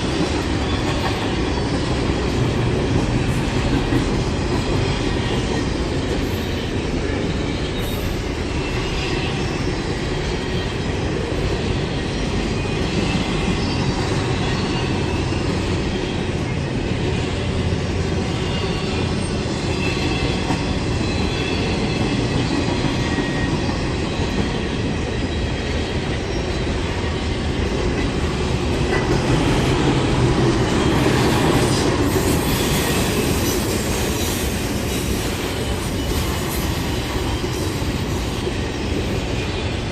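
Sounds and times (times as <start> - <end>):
train wheels rumbling on rails: 0.0 - 39.9
high wheel squeals: 30.6 - 39.8.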